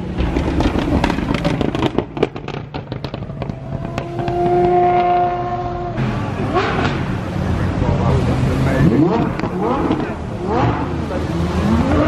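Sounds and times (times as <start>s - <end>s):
exhaust crackles and pops: 0.0s - 7.1s, 8.8s - 10.9s
supercar passing: 0.0s - 12.0s.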